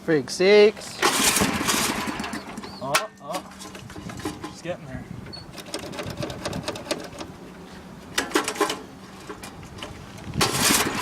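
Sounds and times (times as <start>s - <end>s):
engine cranking: 0.9s - 4.6s, 5.4s - 7.3s, 8.2s - 11.0s.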